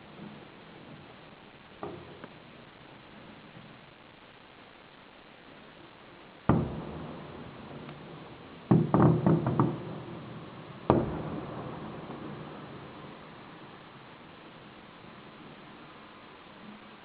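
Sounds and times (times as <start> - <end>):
fireworks booming: 0.0 - 17.0.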